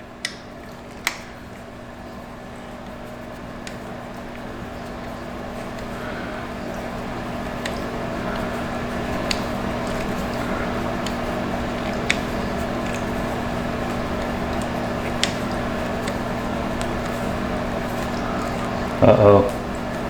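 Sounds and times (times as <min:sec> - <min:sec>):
motor humming and whirring: 0:00.0 - 0:20.0.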